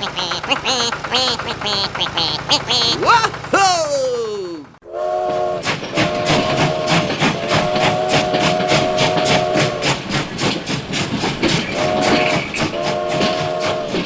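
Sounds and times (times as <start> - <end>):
steam whistle blasts: 4.9 - 10.0, 11.7 - 14.0
steam locomotive chuffing: 5.2 - 14.0.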